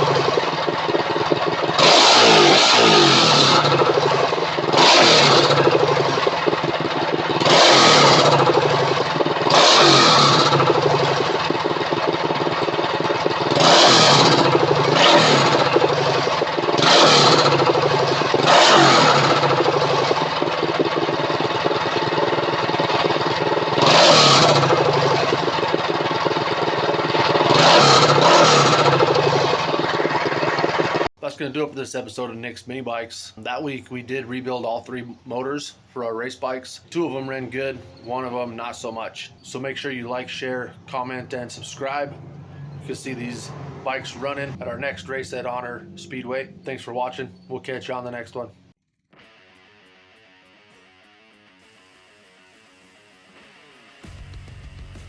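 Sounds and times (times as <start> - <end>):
mini bike engine revving: 0.0 - 31.1, 40.9 - 47.2.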